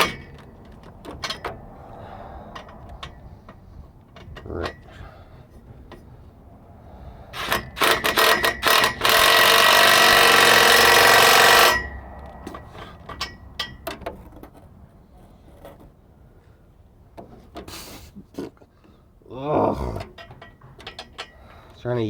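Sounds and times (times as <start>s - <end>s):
impact wrench: 7.4s - 12.6s.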